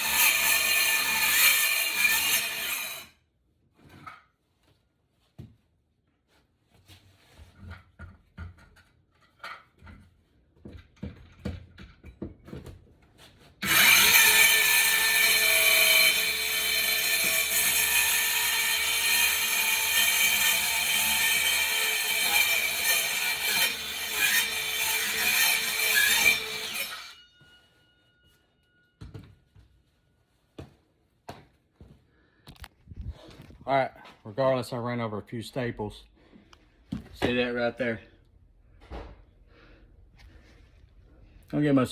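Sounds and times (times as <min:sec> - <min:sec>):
power saw cutting floor: 0:00.0 - 0:03.1, 0:13.6 - 0:27.3.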